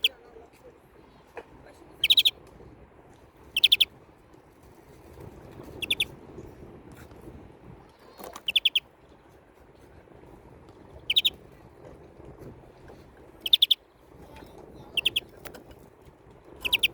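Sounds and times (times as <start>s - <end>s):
greenfinch chattering: 2.0s - 2.4s, 3.5s - 3.9s, 5.8s - 6.1s, 8.4s - 8.8s, 11.0s - 11.4s, 13.4s - 13.8s, 14.8s - 15.4s, 16.6s - 16.9s.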